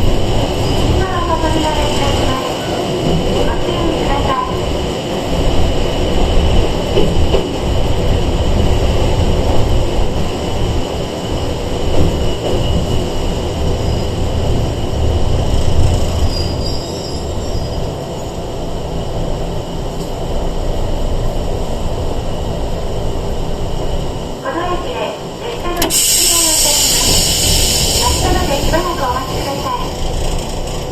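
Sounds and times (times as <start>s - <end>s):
train wheels rumbling on rails: 0.0s - 30.9s
high-pitched train whine: 23.6s - 30.8s.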